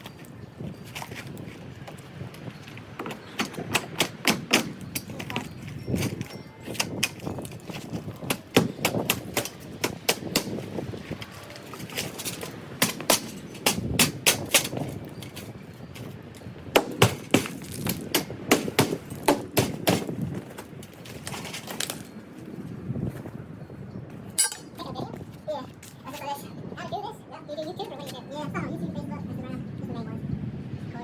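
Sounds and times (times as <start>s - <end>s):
wood knocking and banging: 1.8s - 15.5s, 16.7s - 22.1s.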